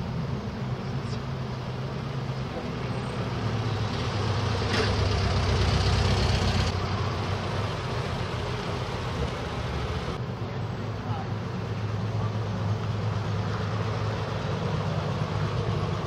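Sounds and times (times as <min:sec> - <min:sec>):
vehicle engine running: 0:02.0 - 0:10.2.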